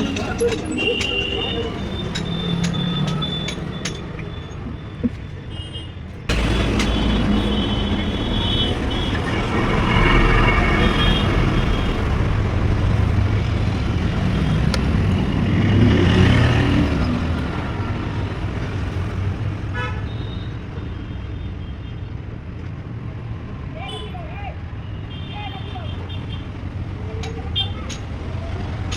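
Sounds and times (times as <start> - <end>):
high tone: 0.0 - 4.6
tractor diesel engine running: 6.3 - 15.4.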